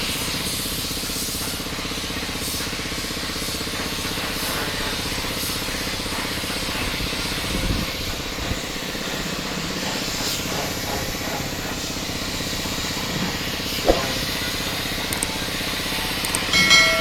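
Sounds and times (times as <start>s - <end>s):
sharp knock: 13.8s - 14.3s.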